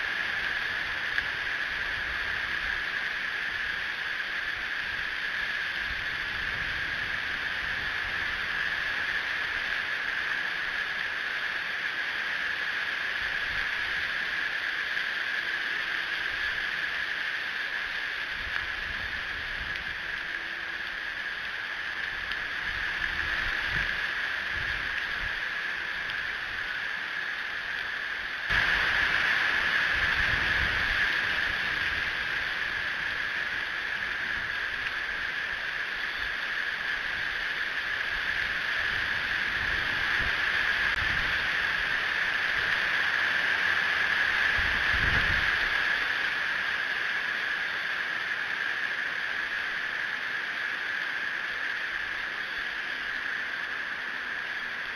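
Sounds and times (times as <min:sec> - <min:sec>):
strong wind on microphone: 0:04.5 - 0:09.3, 0:22.2 - 0:26.6, 0:28.5 - 0:46.3.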